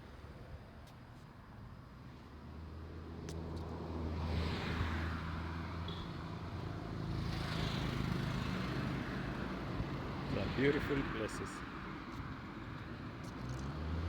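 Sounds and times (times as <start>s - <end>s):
vehicles passing: 2.5s - 14.0s.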